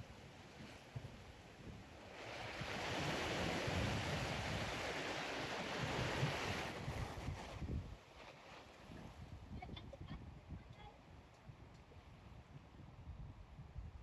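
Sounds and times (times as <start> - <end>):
wind rumbling on microphone: 0.0 - 14.0
ocean wave rushing in: 2.1 - 7.4.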